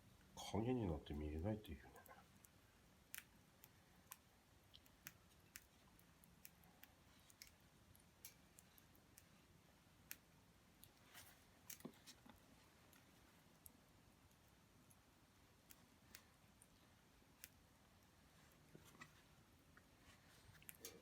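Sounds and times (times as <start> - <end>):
faint wood fire crackles: 0.0 - 21.0.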